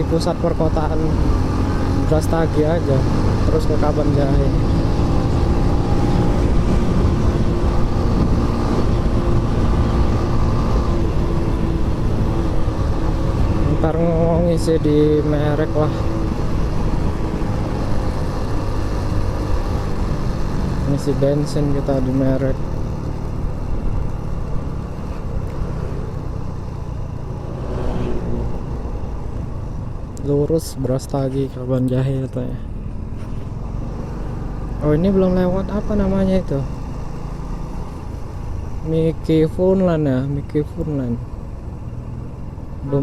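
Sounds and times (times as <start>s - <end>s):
motorcycle engine hum: 0.0s - 43.0s
road noise: 0.0s - 43.0s
wind rumble on microphone: 3.4s - 14.5s.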